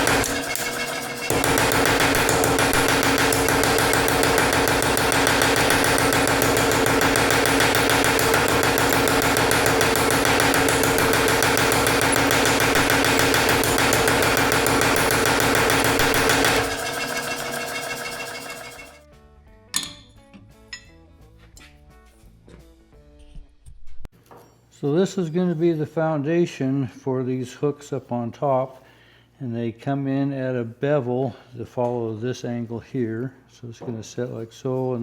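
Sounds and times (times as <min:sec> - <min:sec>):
power hammer hitting iron: 0:00.0 - 0:19.0.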